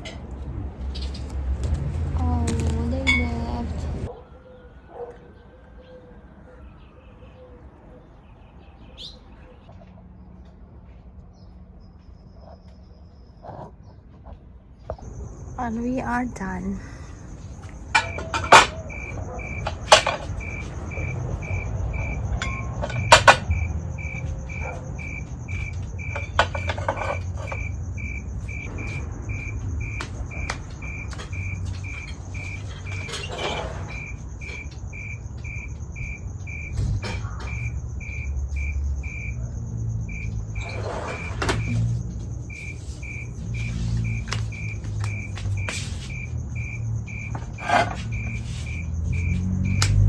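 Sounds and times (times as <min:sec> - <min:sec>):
cricket chirping: 0:14.8 - 0:50.0
high insect trill: 0:15.0 - 0:50.0.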